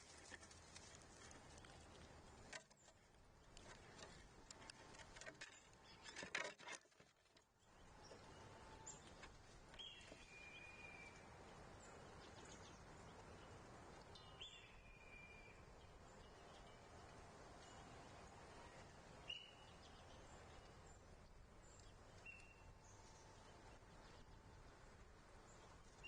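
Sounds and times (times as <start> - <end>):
birds chirping: 7.3 - 26.0.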